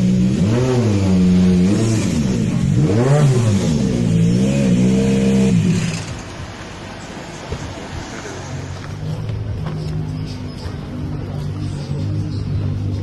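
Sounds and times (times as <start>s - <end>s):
rally car engine revving: 0.0s - 6.3s.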